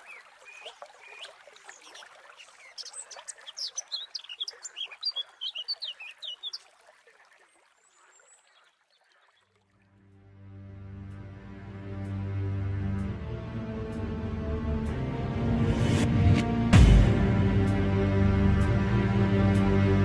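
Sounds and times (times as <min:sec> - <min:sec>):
songbird chirping: 0:00.0 - 0:09.6
trickle of running water: 0:00.0 - 0:10.2
music: 0:10.1 - 0:20.0.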